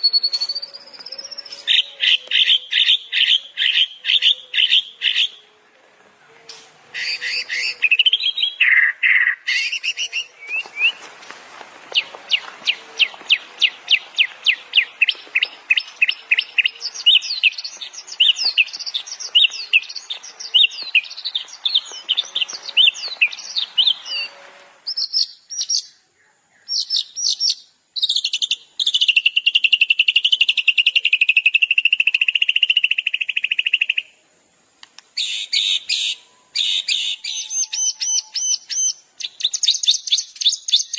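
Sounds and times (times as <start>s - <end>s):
songbirds singing: 0.0s - 11.2s, 11.8s - 40.9s
faint hiss: 9.4s - 37.2s.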